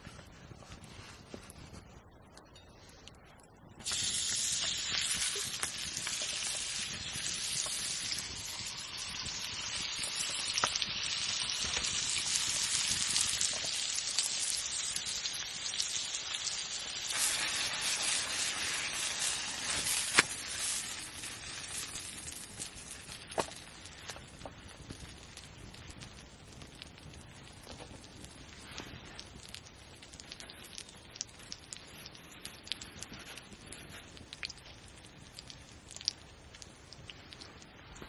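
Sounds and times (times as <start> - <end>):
food sizzling in a pan: 3.8 - 23.4.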